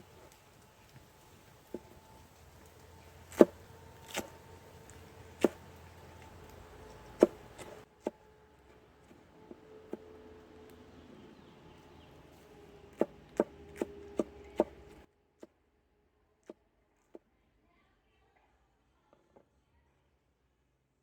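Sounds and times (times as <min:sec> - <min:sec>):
sharp chopping strikes: 0:03.2 - 0:08.2, 0:12.9 - 0:15.0.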